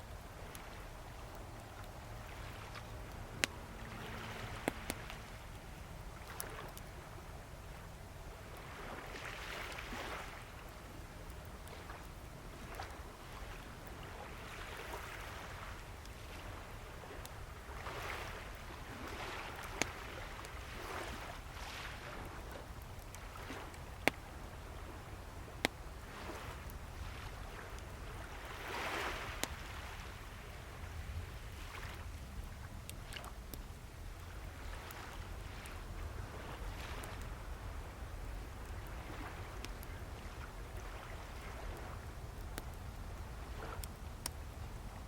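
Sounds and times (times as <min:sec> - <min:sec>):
low surf rumble: 0:00.0 - 0:09.0
bonfire crackling and popping: 0:00.0 - 0:45.0
waves washing in: 0:02.1 - 0:06.8, 0:08.5 - 0:10.6, 0:12.6 - 0:30.7.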